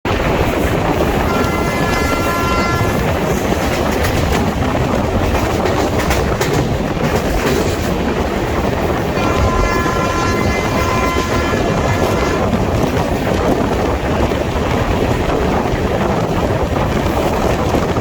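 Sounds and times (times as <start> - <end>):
train passing with roar: 0.1 - 18.0
wheels clattering over rail joints: 0.2 - 18.0
train horn: 1.2 - 3.2, 9.1 - 12.7.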